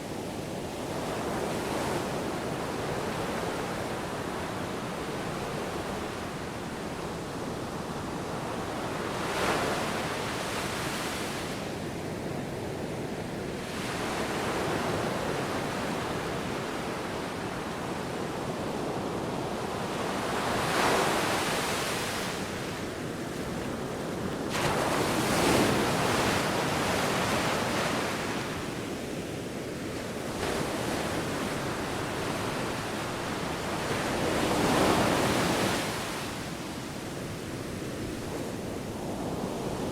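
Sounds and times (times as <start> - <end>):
sea waves breaking on shore: 19.3 - 39.9.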